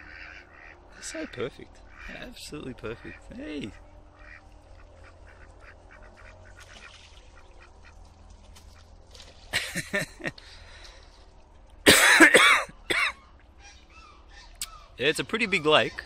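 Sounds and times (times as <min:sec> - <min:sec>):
faint bird calls: 0:00.0 - 0:09.0, 0:12.8 - 0:16.0
ducks quacking: 0:00.0 - 0:11.2, 0:11.9 - 0:16.0.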